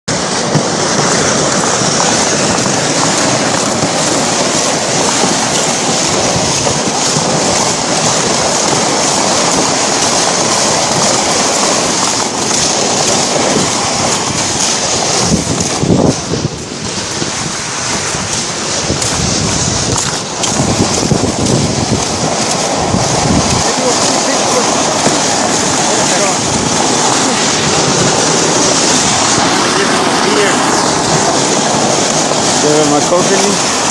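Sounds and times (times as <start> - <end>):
rushing water: 0.1 - 33.9
wind on microphone: 0.1 - 33.9.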